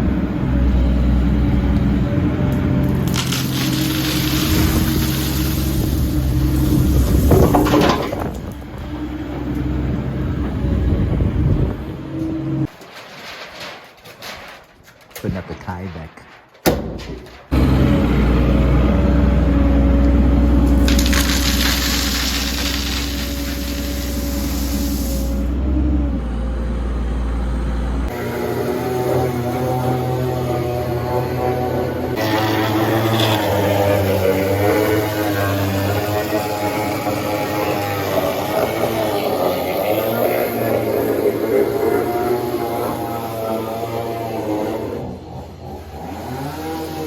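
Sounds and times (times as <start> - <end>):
engine running steadily: 0.0 - 12.7
engine running low hum: 0.0 - 13.0, 17.3 - 47.0
loud hiss: 20.8 - 25.5.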